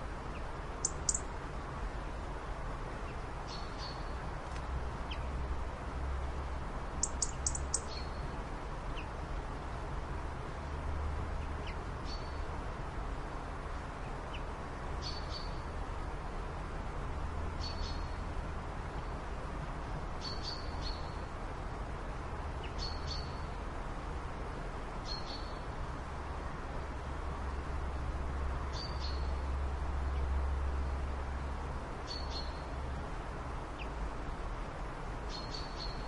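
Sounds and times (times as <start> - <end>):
bird chirping: 0.3 - 1.3, 7.0 - 8.2, 35.3 - 36.0.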